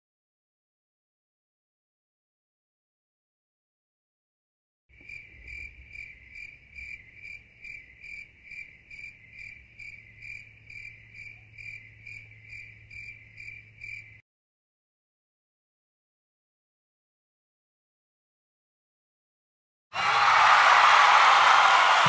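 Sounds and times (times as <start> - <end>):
cricket chirping: 4.9 - 14.2.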